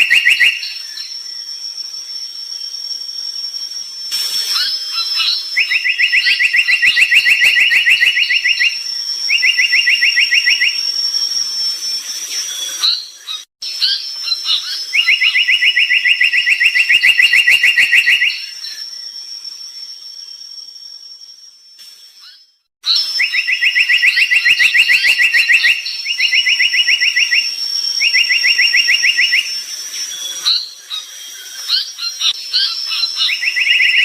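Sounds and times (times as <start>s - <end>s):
bird singing buzzy trills: 0.0s - 34.0s
thin high whine: 0.8s - 5.6s, 7.4s - 13.5s, 26.6s - 33.0s.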